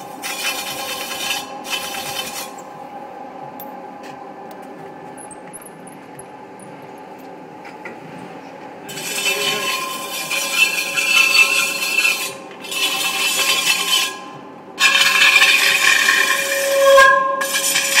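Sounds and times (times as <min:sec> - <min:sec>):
tool scraping metal rim: 0:00.0 - 0:02.6, 0:08.9 - 0:18.0
faint steady squeal: 0:09.2 - 0:18.0.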